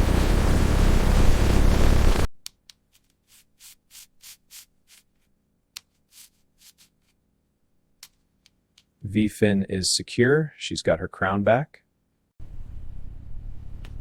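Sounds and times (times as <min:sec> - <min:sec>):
faint rubbing strokes: 0:03.0 - 0:07.2.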